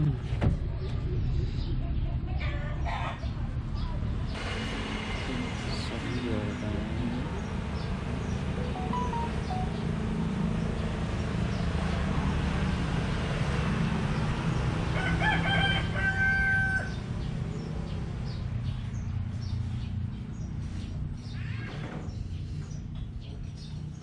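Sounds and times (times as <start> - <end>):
rooster crowing: 14.9 - 17.0.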